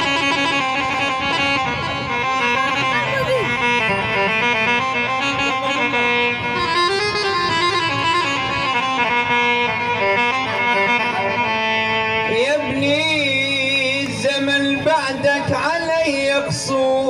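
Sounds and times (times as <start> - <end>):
held accompaniment notes: 0.0 - 16.1
instrumental melody: 0.0 - 16.1.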